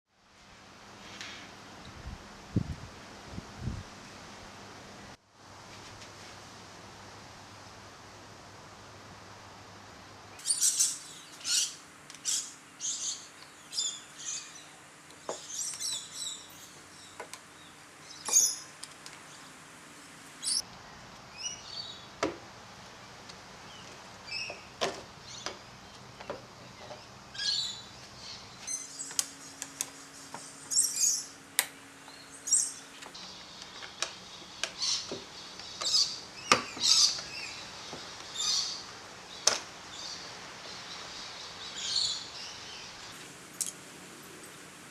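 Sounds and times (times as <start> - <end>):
small birds chirping: 10.3 - 19.7, 20.3 - 22.2, 22.9 - 43.7.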